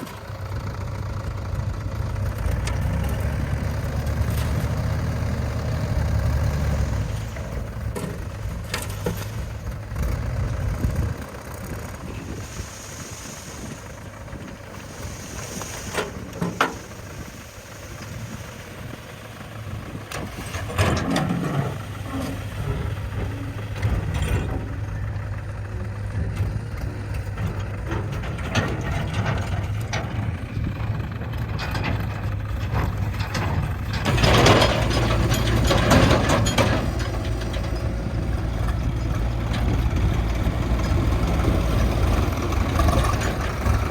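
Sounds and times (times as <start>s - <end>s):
heavy diesel machinery running: 0.0s - 43.9s.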